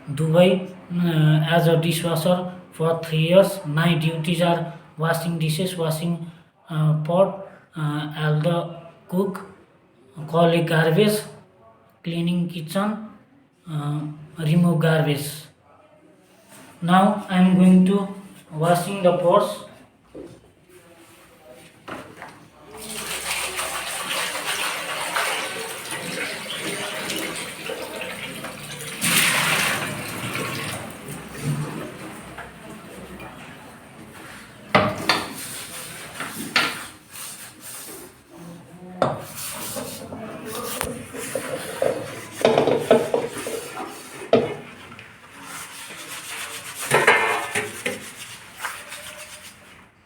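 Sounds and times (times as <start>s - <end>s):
pots being washed: 22.7s - 37.5s, 39.0s - 49.7s
tap water running into sink: 22.8s - 33.4s
metal pots clattering: 46.8s - 47.9s.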